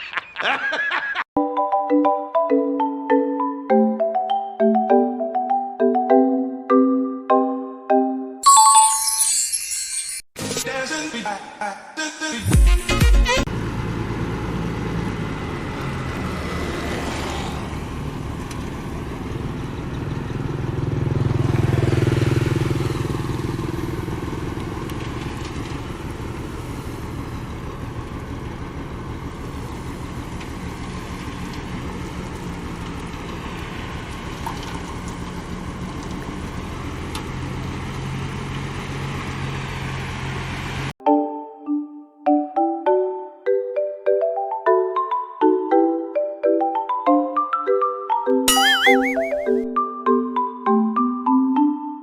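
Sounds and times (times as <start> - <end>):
heavy machine engine rumbling: 22.6 - 40.9.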